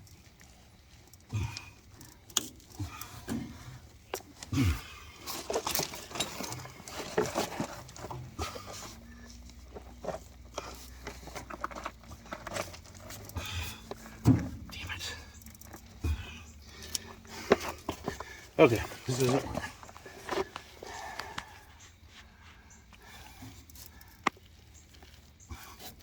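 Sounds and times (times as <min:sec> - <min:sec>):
clinks of metal plumbing parts: 0:01.4 - 0:08.8.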